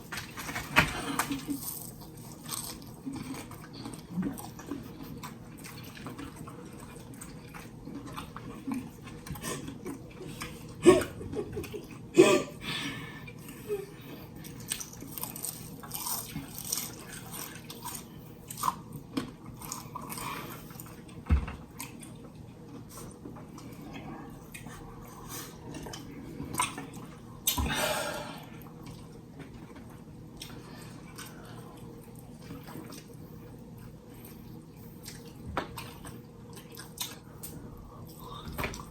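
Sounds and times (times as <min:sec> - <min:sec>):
wet chewing and mouth sounds: 0:00.0 - 0:12.1, 0:13.3 - 0:27.8, 0:28.4 - 0:38.9
people crunching fried chicken: 0:00.2 - 0:11.9, 0:14.4 - 0:21.0.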